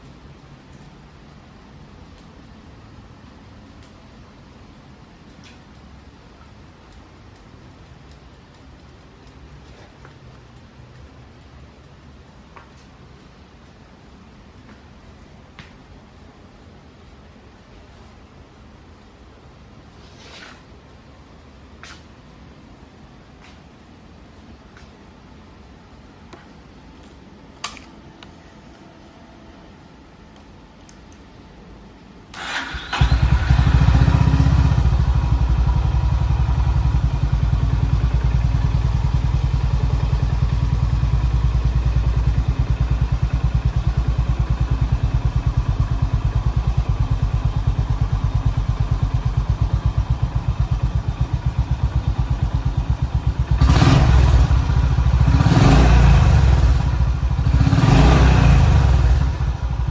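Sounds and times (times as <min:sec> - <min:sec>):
motorcycle engine idling: 0:32.5 - 0:59.9
engine revving: 0:53.5 - 0:59.8.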